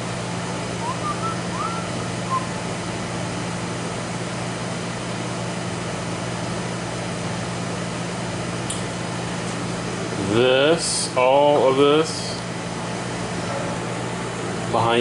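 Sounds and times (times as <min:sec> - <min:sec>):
slot machine electrical hum: 0:00.0 - 0:15.0.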